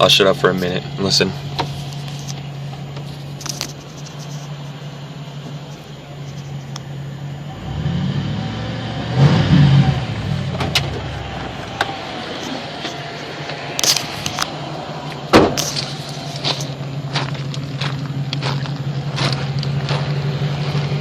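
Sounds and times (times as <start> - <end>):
engine idling: 0.0 - 21.0
engine revving: 7.3 - 21.0.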